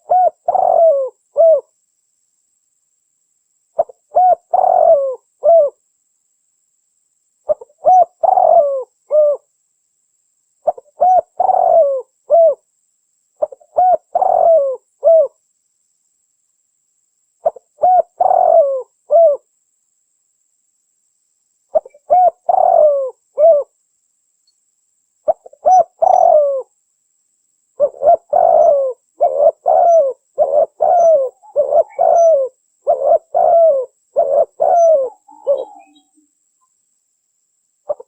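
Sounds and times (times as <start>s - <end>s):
dove cooing: 0.0s - 1.7s, 3.8s - 5.8s, 7.5s - 9.5s, 10.6s - 12.6s, 13.4s - 15.4s, 17.4s - 19.5s, 21.7s - 23.7s, 25.3s - 26.7s, 27.8s - 36.2s.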